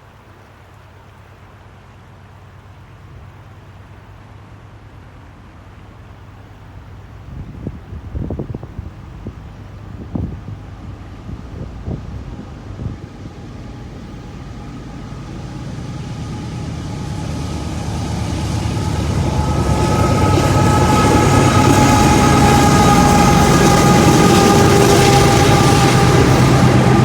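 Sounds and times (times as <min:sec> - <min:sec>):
freight train approaching: 0:02.2 - 0:27.0
deep engine rumble: 0:03.5 - 0:27.0
steady high tones: 0:13.4 - 0:27.0.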